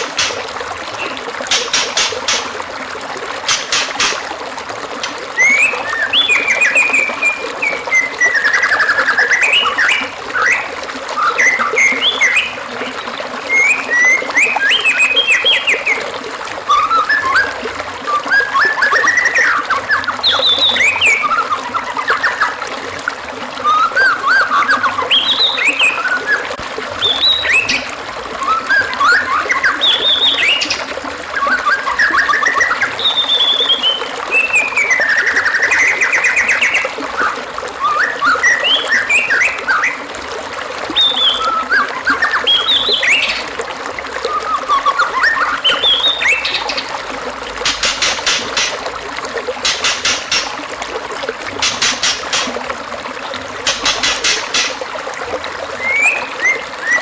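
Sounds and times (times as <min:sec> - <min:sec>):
bird singing whistles and trills: 0:05.4 - 0:16.1, 0:16.7 - 0:22.6, 0:23.6 - 0:40.0, 0:40.9 - 0:43.5, 0:44.2 - 0:46.9, 0:55.8 - 0:57.0.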